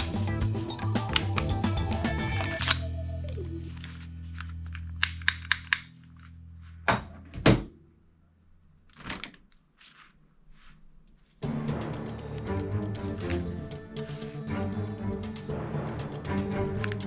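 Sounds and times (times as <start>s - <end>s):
plastic toy pistol clicks: 5.0s - 5.9s.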